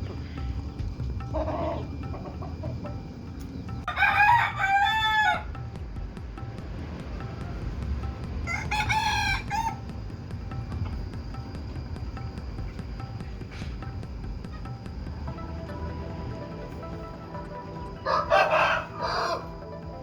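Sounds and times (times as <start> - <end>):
rooster crowing: 3.9 - 5.7, 8.4 - 9.9, 17.8 - 19.8.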